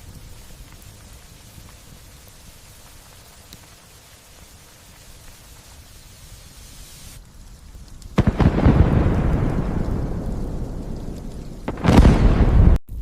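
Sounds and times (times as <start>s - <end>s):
light steady rain: 0.0s - 13.0s
thunder cracking and rumbling: 7.4s - 13.0s.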